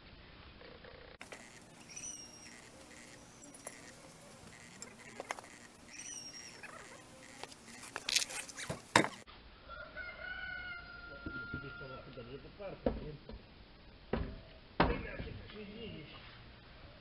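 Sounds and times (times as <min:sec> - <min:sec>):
small bird chirping: 0:01.2 - 0:09.3.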